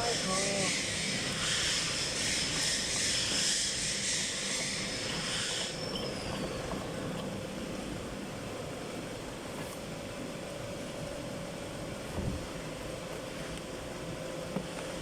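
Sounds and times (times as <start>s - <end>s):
hot-air welding gun hissing: 0.0s - 5.8s
steady machine hum: 0.0s - 15.0s.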